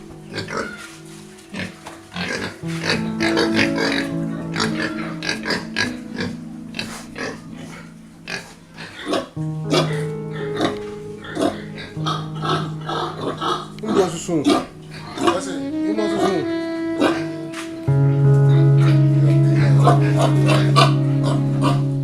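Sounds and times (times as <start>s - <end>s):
music with long held notes: 0.0s - 22.0s
pigs grunting: 1.5s - 15.6s.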